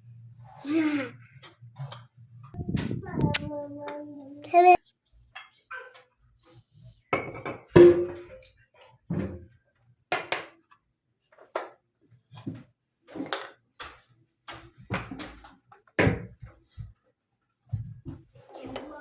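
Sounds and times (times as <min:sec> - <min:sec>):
dishes clinking and knocking: 0:07.1 - 0:08.5.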